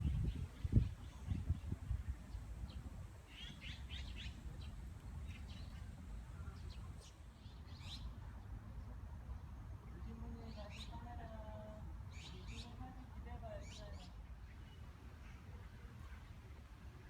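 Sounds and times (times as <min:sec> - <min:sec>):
small birds chirping: 0:00.0 - 0:08.2, 0:09.8 - 0:14.8.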